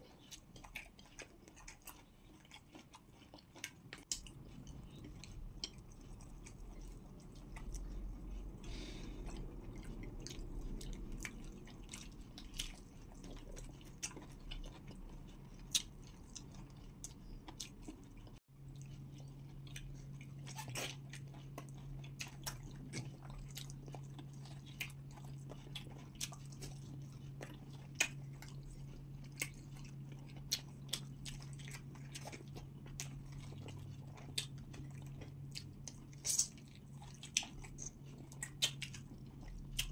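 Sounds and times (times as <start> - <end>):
wet chewing mouth sounds: 0.0 - 39.9
low hum: 4.1 - 20.5.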